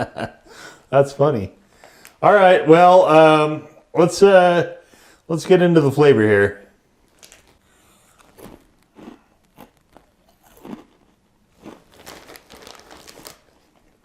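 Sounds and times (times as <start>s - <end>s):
person crunching snacks: 7.0s - 14.0s.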